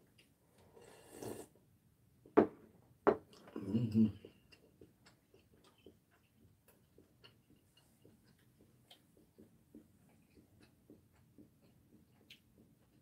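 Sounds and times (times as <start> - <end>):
soft clicks of chewing: 0.0 - 0.7, 3.3 - 13.0.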